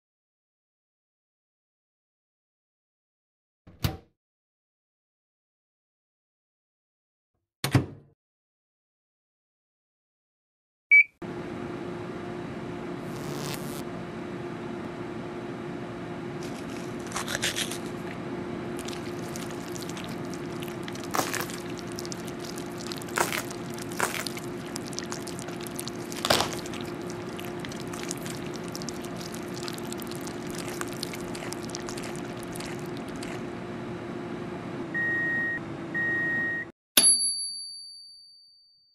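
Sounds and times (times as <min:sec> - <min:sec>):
microwave humming: 0:11.2 - 0:36.6
food popping and crackling: 0:18.8 - 0:33.4.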